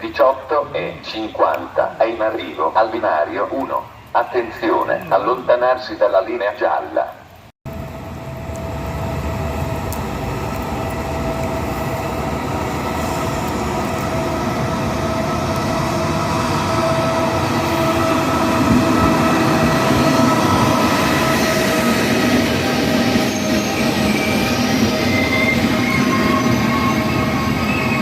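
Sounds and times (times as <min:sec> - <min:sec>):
train rumble: 0:07.7 - 0:28.0.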